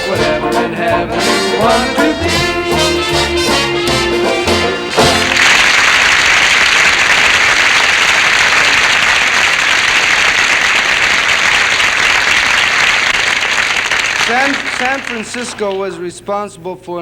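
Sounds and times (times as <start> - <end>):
orchestra closing chord: 0.0 - 5.7
audience applauding: 2.7 - 16.0.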